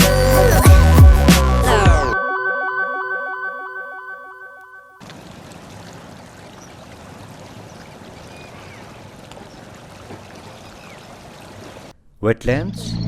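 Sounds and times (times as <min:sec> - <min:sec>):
synth music tune: 0:00.0 - 0:05.0
flowing water: 0:05.0 - 0:11.9.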